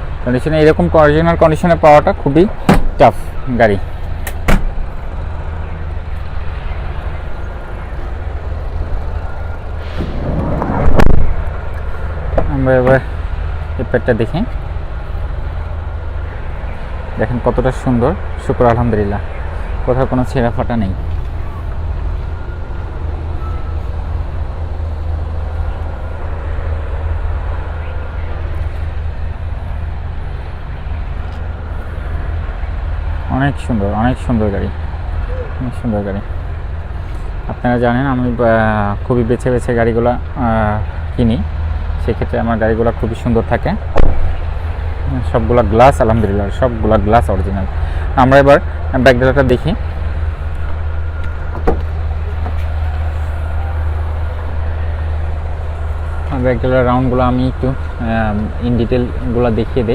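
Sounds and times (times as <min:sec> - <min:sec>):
low rumble and hiss: 0:00.0 - 0:59.9
loud thump: 0:02.7 - 0:03.0, 0:04.3 - 0:04.8, 0:09.8 - 0:11.4, 0:44.0 - 0:44.2, 0:51.5 - 0:51.9.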